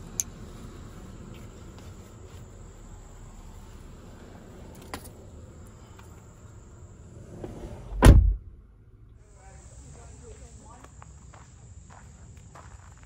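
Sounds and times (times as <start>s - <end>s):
insects trilling: 0.0s - 7.4s, 9.2s - 13.0s
heavy thump: 7.4s - 8.6s.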